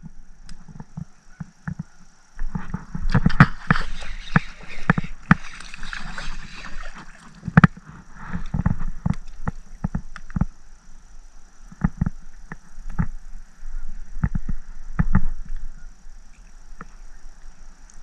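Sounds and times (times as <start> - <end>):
water sloshing: 2.8 - 10.1.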